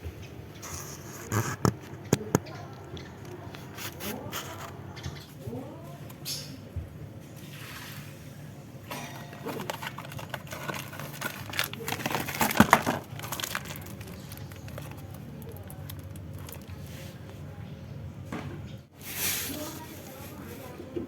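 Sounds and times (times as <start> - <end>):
clicks and rattles of car parts: 8.9 - 13.8.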